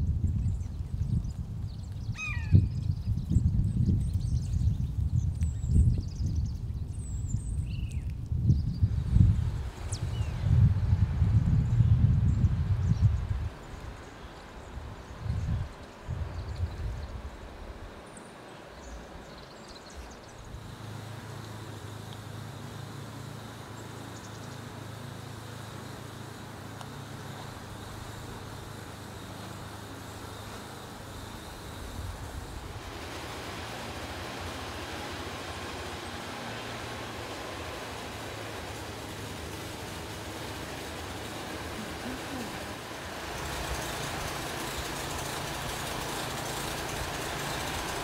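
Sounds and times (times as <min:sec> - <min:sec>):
low engine rumble: 0:00.0 - 0:48.0
even hiss: 0:17.2 - 0:48.0.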